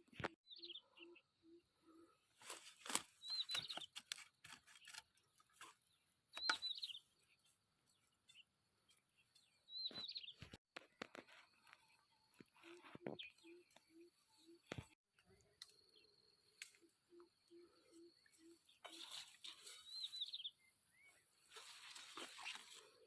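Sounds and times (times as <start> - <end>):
small bird chirping: 0.2 - 5.1, 5.8 - 15.0, 15.6 - 22.7
rustling undergrowth: 2.4 - 5.7, 18.8 - 23.0.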